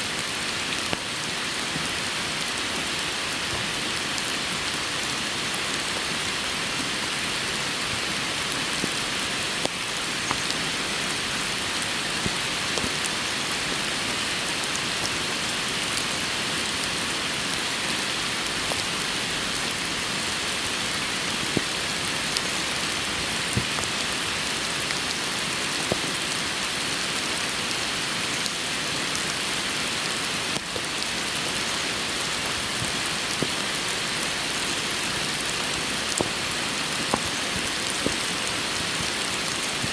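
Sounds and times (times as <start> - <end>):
steady rain hiss: 0.0 - 39.9
raindrops ticking: 28.2 - 39.9.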